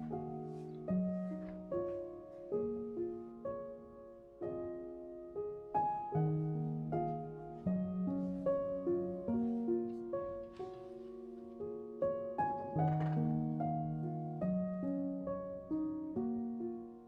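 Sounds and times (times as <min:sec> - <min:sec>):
soft piano music: 0:00.0 - 0:17.0.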